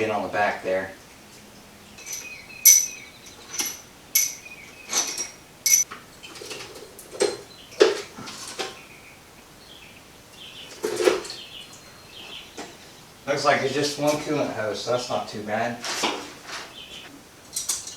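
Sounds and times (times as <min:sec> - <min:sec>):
soft knocks and rustling: 0:15.7 - 0:17.9
high squeaks and clicks: 0:16.5 - 0:17.1.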